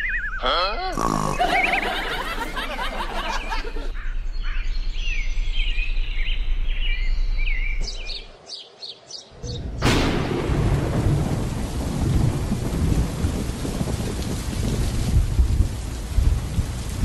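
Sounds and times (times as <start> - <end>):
birds warbling whistles: 0.0 - 2.2, 3.3 - 9.8
outdoor background noise: 0.0 - 17.0.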